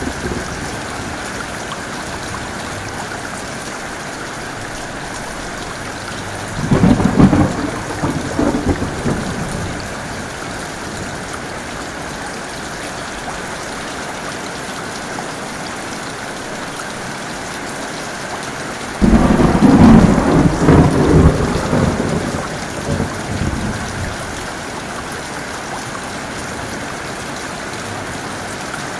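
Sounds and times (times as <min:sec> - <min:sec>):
thunder rumbling: 0:00.0 - 0:03.2, 0:05.7 - 0:11.4, 0:19.0 - 0:24.6
heavy rain: 0:00.0 - 0:28.9.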